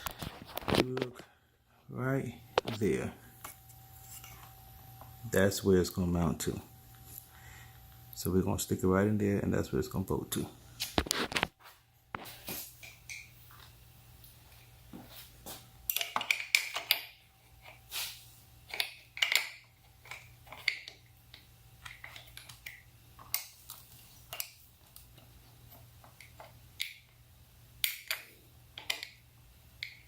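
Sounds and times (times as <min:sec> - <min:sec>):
faint low hum: 0:00.0 - 0:30.0
hand tools clicking and tapping: 0:15.9 - 0:17.8, 0:18.7 - 0:27.1, 0:29.8 - 0:30.0.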